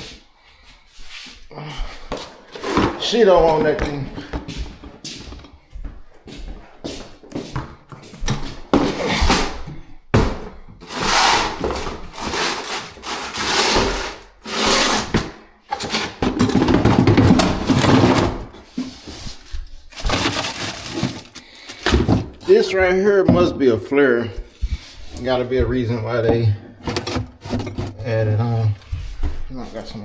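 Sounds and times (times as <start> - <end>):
plumbing parts scraping and rustling: 10.8 - 23.8, 25.0 - 29.2.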